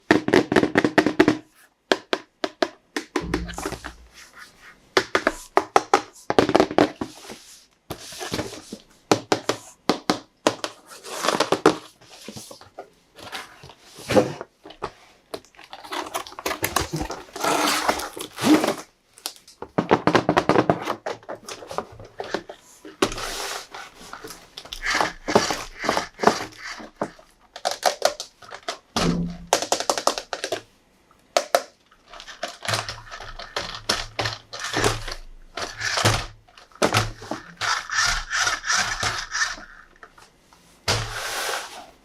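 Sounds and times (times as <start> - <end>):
plastic toy trucks clattering: 19.8 - 30.7, 31.4 - 40.2.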